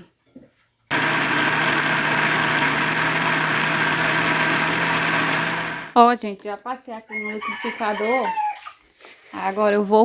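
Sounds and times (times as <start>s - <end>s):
blender grinding: 0.9s - 6.0s
blender motor hum: 0.9s - 6.0s.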